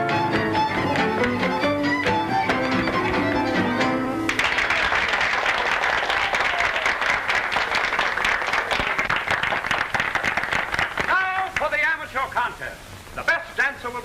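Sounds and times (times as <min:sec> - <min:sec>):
band music: 0:00.0 - 0:04.4
audience applauding: 0:04.3 - 0:11.7.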